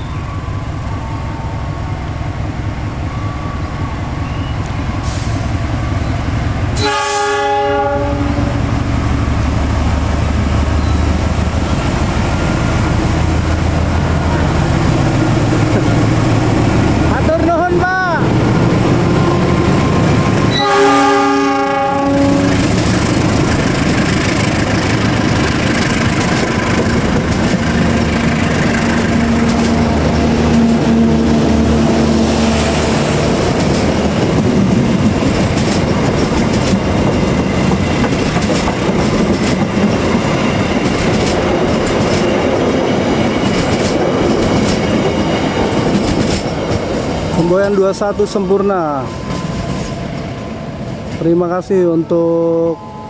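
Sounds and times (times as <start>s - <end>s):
locomotive engine droning: 0.0s - 53.0s
locomotive horn: 6.8s - 8.6s, 20.5s - 22.8s, 52.3s - 53.0s
wheels clacking over rail joints: 22.6s - 31.2s, 33.3s - 47.4s.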